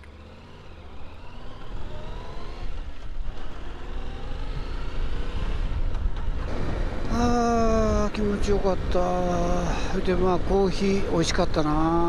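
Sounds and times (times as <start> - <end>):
motorcycle engine accelerating: 0.0 - 8.0.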